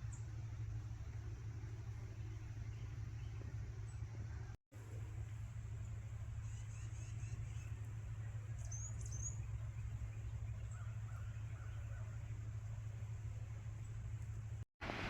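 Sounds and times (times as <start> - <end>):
small birds chirping: 0.0 - 4.6, 5.7 - 12.2.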